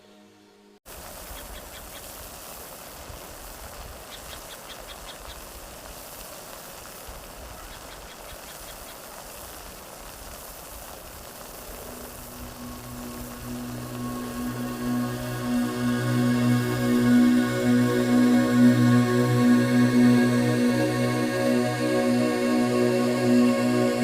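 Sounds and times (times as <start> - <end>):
steady rushing noise: 10.3 - 24.0.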